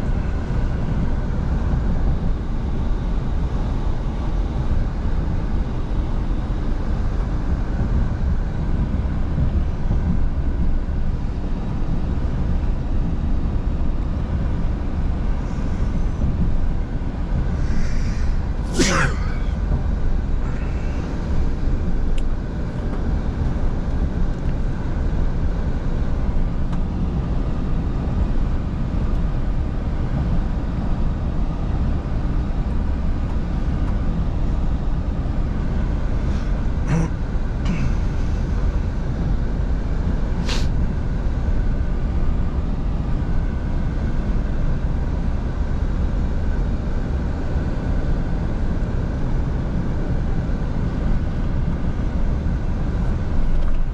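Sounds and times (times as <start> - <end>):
road noise: 15.2 - 23.0.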